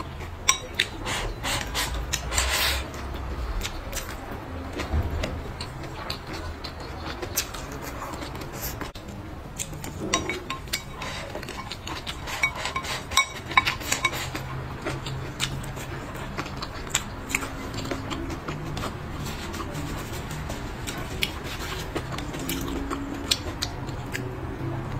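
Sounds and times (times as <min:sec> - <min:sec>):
utensils clinking on dishes: 0:00.0 - 0:02.8, 0:09.7 - 0:23.6
chewing: 0:00.0 - 0:24.9.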